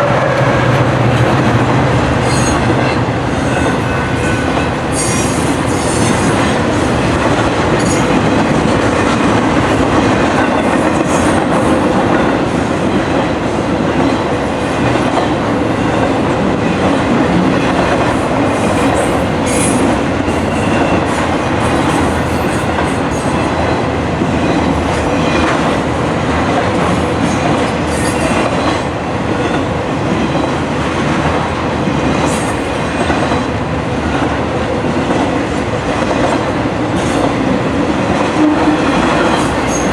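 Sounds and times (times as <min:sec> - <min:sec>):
train wheels rumbling on rails: 0:00.0 - 0:39.9
high wheel squeals: 0:02.2 - 0:08.5, 0:17.4 - 0:23.7.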